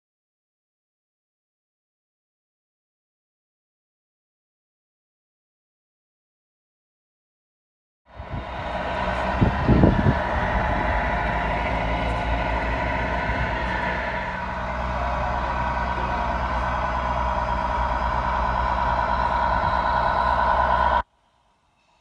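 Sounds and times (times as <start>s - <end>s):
model truck engine drone: 8.1s - 21.7s.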